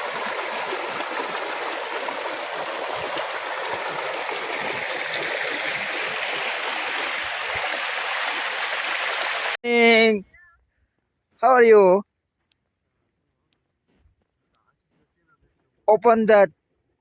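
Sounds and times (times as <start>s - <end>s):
stream flowing: 0.0s - 9.6s.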